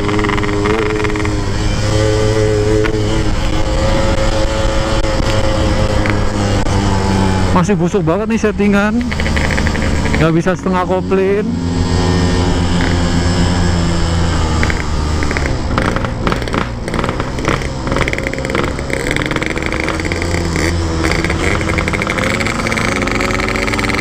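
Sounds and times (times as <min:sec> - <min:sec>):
motorcycle engine running: 0:00.0 - 0:24.0
knocks and rattles: 0:09.0 - 0:10.3, 0:14.6 - 0:24.0.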